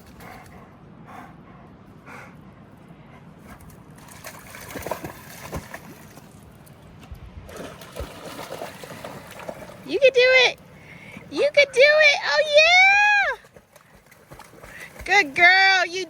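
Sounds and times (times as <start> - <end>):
water splashes: 3.5 - 16.0
shallow water trickling: 7.9 - 16.0.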